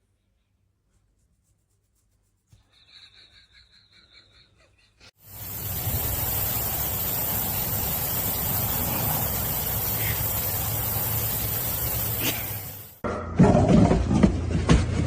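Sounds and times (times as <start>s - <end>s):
steady hissing noise: 5.1s - 13.0s.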